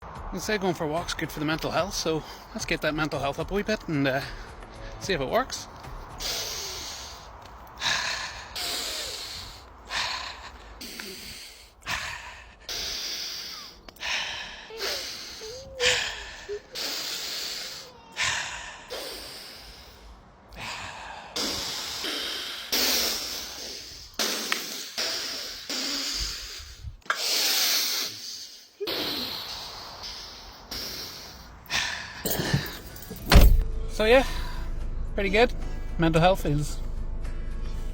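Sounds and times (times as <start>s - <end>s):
person panting heavily: 2.2s - 2.6s, 3.7s - 5.0s, 5.6s - 33.5s
wheezy voiced sounds: 14.7s - 20.0s, 21.4s - 31.4s.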